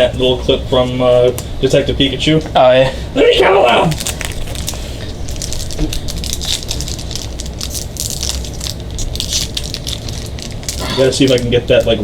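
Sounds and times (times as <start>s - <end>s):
steady low hum: 0.0s - 12.0s
foil wrappers crinkling: 3.2s - 12.0s.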